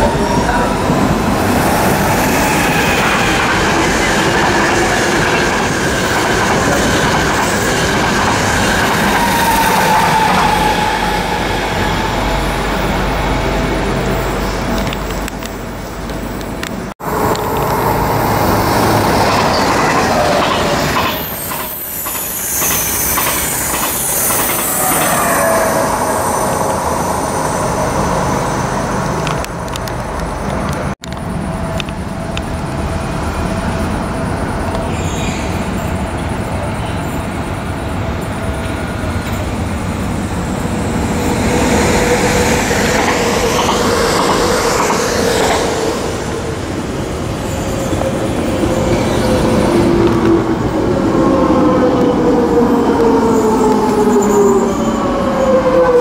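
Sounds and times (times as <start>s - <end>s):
train whine: 0.0s - 56.0s
high wheel squeal: 8.4s - 14.7s, 17.0s - 29.4s, 33.7s - 56.0s.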